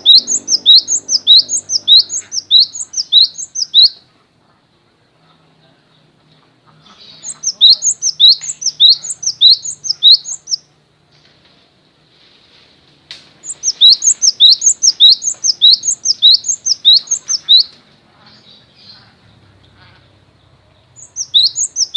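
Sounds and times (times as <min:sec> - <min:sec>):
songbird whistling: 0:00.0 - 0:04.0, 0:07.2 - 0:10.7, 0:13.4 - 0:17.8, 0:21.0 - 0:21.9.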